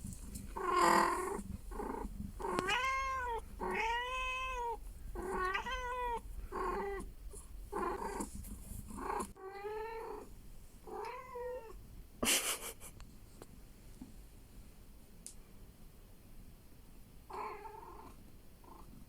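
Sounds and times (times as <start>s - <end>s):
cat meowing: 2.5s - 7.1s.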